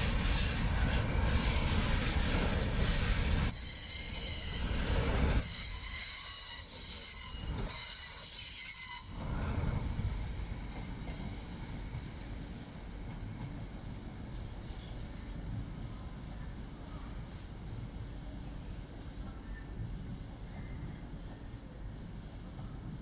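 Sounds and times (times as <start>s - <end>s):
train rumbling past: 0.0s - 23.0s.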